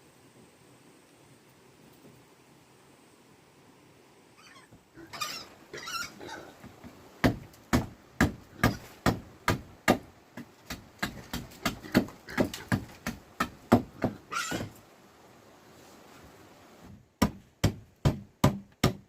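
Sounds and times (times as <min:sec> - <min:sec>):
animal calls: 0:04.4 - 0:06.7, 0:14.1 - 0:14.8
tool striking wood: 0:17.2 - 0:19.0.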